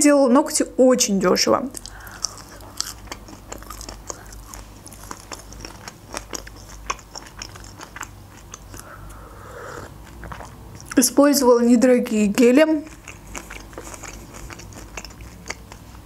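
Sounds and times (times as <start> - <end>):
wet mouth clicks: 1.7 - 11.0, 12.8 - 16.0
crunchy chewing: 1.8 - 11.0, 12.7 - 16.0.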